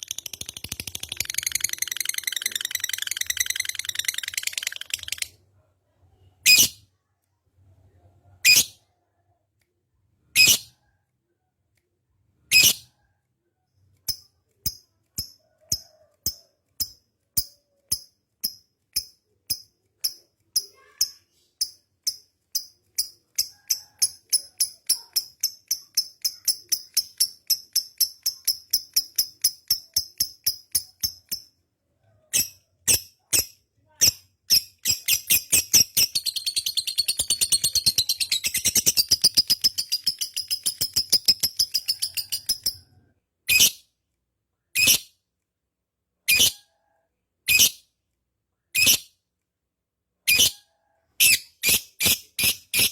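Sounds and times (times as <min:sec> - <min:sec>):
lovebird rapid high chirps: 0:00.0 - 0:05.3, 0:32.3 - 0:42.9, 0:51.2 - 0:52.9.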